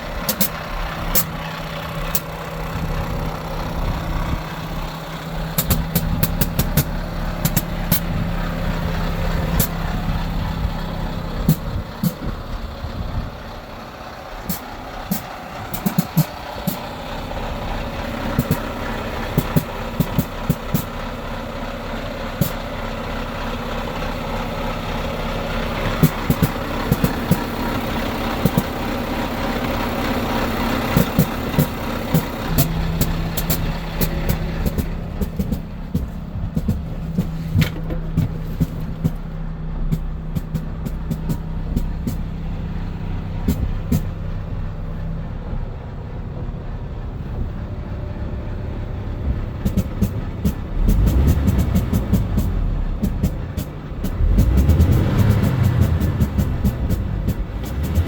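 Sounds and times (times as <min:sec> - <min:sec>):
diesel truck engine idling: 0:00.0 - 0:58.0
sharp clicks: 0:05.6 - 0:08.2, 0:14.5 - 0:16.9.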